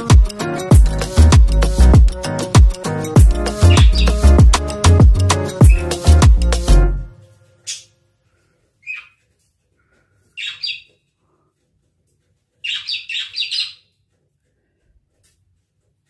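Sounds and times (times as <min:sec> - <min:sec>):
budgerigar chirping: 0:03.5 - 0:04.4, 0:05.6 - 0:06.0, 0:08.8 - 0:09.2, 0:10.4 - 0:11.0, 0:12.6 - 0:13.9.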